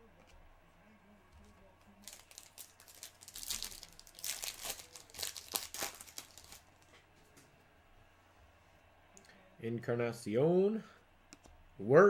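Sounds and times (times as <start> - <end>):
foil wrapper tearing and crinkling: 2.0 - 6.7.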